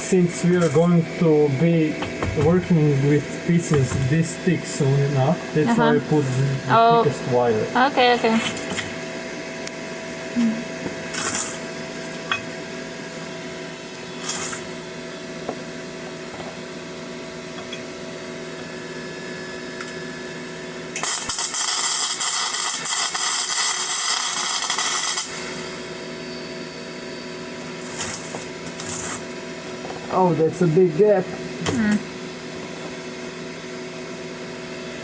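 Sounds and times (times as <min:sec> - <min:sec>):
welder hum: 0:00.0 - 0:35.0
welding arc crackling: 0:14.2 - 0:14.8, 0:20.9 - 0:26.0, 0:27.6 - 0:29.4.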